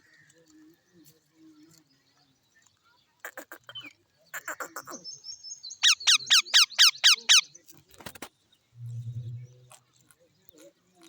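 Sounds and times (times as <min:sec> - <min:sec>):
parrot chattering and screeching: 0:05.8 - 0:07.4.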